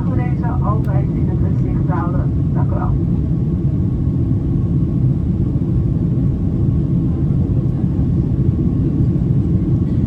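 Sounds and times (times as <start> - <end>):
faint steady whine: 0.0 - 6.1
airplane cabin rumble: 0.0 - 10.0.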